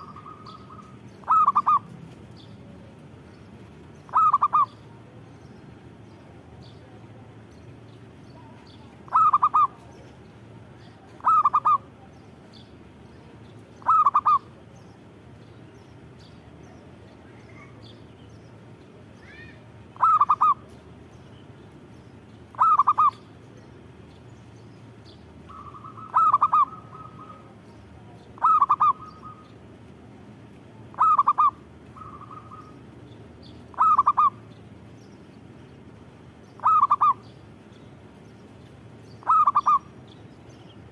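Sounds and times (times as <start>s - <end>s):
dove cooing: 0.0s - 2.0s, 4.1s - 5.0s, 9.0s - 10.0s, 11.0s - 11.9s, 13.8s - 14.6s, 20.0s - 20.7s, 22.5s - 23.2s, 25.5s - 29.5s, 30.9s - 32.8s, 33.7s - 34.4s, 36.6s - 37.2s, 39.2s - 39.9s.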